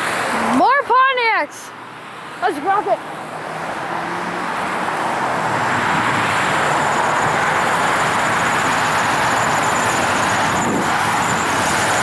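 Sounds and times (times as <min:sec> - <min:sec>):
car engine and exhaust accelerating: 0:03.0 - 0:12.0.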